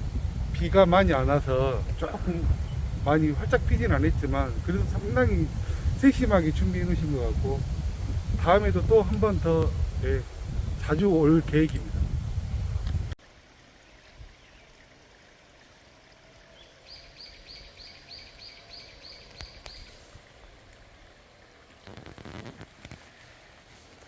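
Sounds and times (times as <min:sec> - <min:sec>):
outdoor background hiss: 0:00.0 - 0:24.0
brief rustle: 0:21.8 - 0:24.0.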